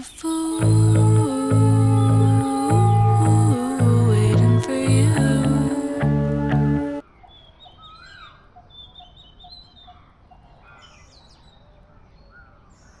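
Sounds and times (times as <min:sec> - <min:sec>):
background song: 0:00.0 - 0:07.0.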